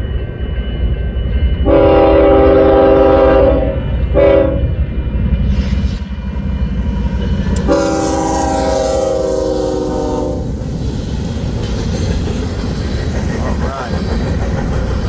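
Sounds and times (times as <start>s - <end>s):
freight train rumbling past: 0.0s - 15.0s
locomotive horn: 1.7s - 4.8s, 7.6s - 10.5s.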